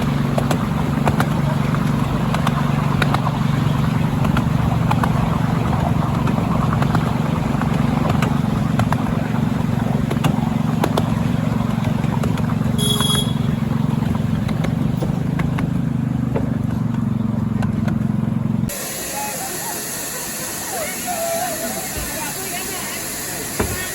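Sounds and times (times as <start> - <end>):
train rumbling: 0.0 - 17.8.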